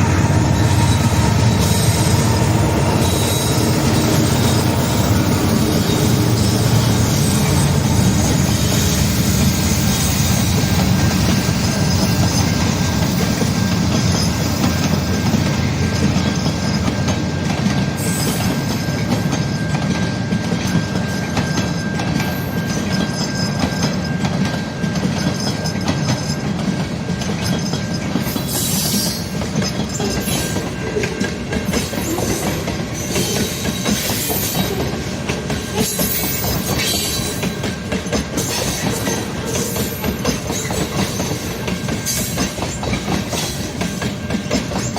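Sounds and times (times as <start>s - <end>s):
thin steady squeal: 0.0s - 16.9s
train wheels clacking over rails: 0.0s - 44.9s.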